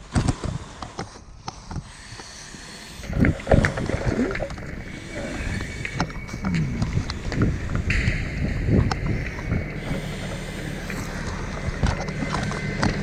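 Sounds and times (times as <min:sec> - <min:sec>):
breathing through face mask: 0:00.0 - 0:07.8, 0:09.4 - 0:12.8.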